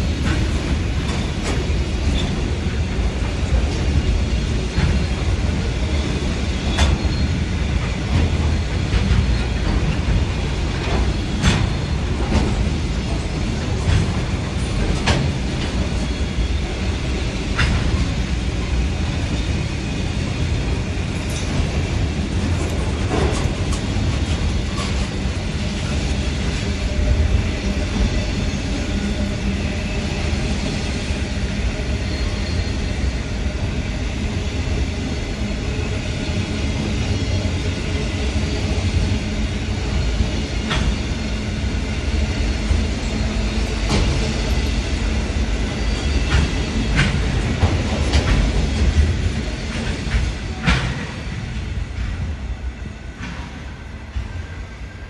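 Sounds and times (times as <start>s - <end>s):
freight wagons rumbling on rail: 0.0s - 55.0s.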